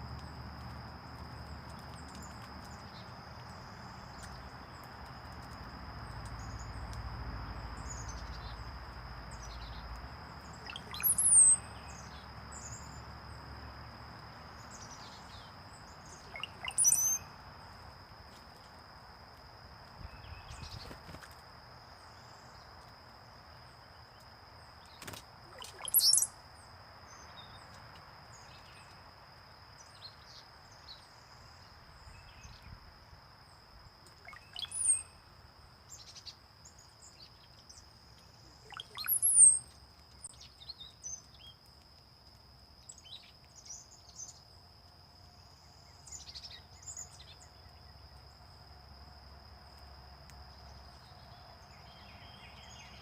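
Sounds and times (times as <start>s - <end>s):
high bird chirps: 10.5s - 12.1s, 16.0s - 17.3s, 25.5s - 26.3s, 34.2s - 35.1s, 38.6s - 39.7s
sharply falling bird notes: 24.9s - 26.3s.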